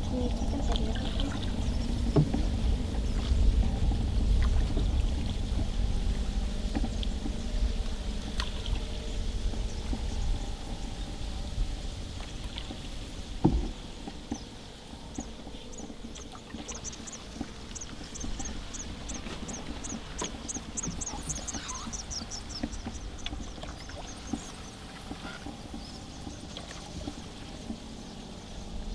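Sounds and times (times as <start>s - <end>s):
songbird chirping: 14.3s - 28.6s.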